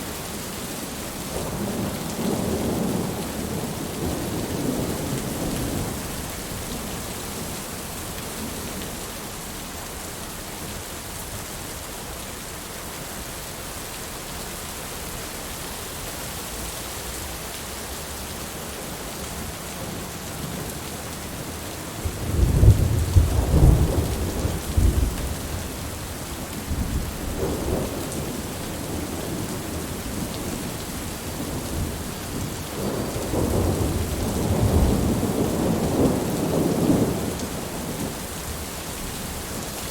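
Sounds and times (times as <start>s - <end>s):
steady rain: 0.0s - 39.9s
rolling thunder: 22.0s - 30.8s, 31.4s - 38.1s.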